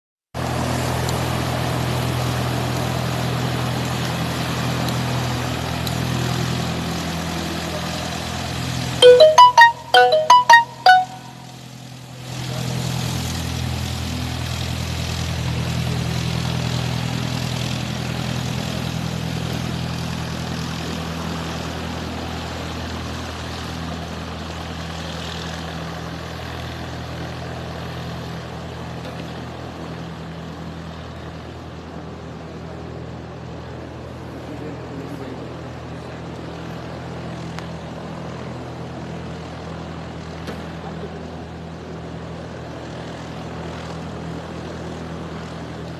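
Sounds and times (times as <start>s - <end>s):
propeller plane engine droning: 0.4s - 8.9s, 12.6s - 45.9s.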